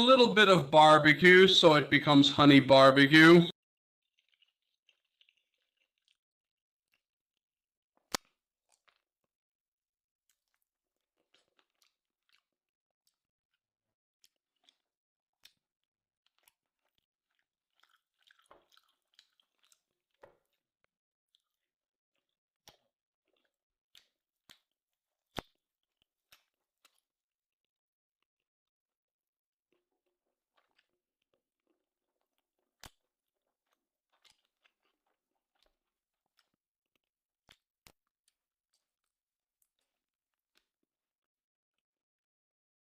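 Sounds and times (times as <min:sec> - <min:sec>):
faint chewing of steak: 0:04.2 - 0:06.2, 0:14.2 - 0:20.7, 0:29.7 - 0:40.8.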